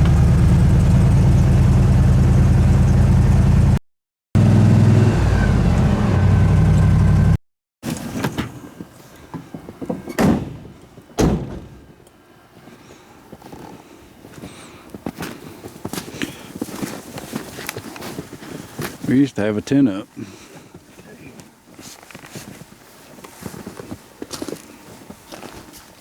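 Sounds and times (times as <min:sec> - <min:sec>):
engine running: 0:00.0 - 0:03.8, 0:04.4 - 0:07.4
sharp thuds: 0:09.9 - 0:11.9.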